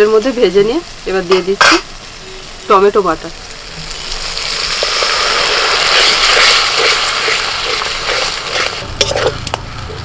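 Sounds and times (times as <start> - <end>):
food frying with loud sizzle: 0.0 - 10.0
metal spatula scraping a pan: 1.3 - 1.9, 4.7 - 9.6.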